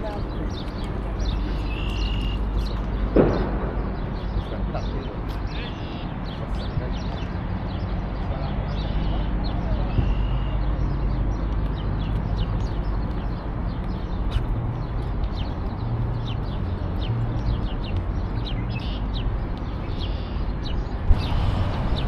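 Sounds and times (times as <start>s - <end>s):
steady low rumble: 0.0s - 10.1s, 20.5s - 22.0s
small birds chirping: 0.0s - 22.0s.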